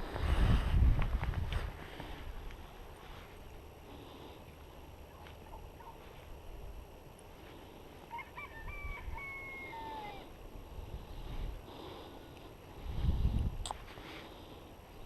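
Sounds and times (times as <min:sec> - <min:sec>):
low wind rumble: 0:00.0 - 0:15.0
rooster crowing: 0:08.1 - 0:10.4.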